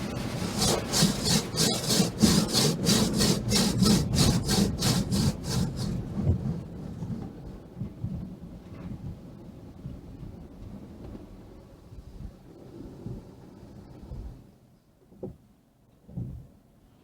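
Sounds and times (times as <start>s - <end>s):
car wash brushes swishing: 0.0s - 6.2s
steady low hum: 0.0s - 6.2s.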